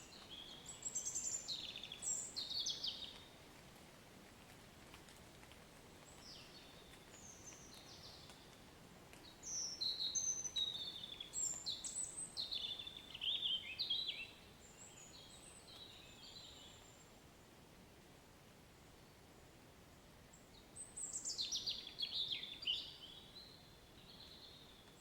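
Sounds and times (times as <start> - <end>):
songbird singing: 0.0 - 3.4, 6.1 - 17.2, 20.3 - 25.0
soft rain hiss: 0.0 - 25.0.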